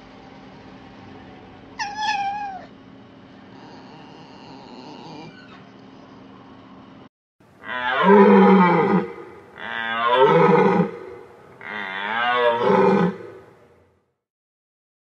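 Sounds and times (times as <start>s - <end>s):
large animal bellowing: 7.6s - 13.6s.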